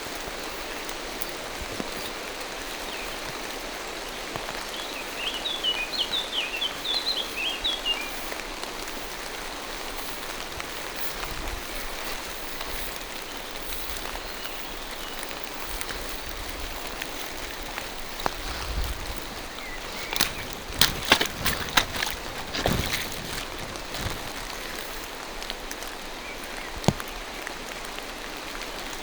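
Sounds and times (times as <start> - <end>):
rain falling through trees: 0.0 - 29.0.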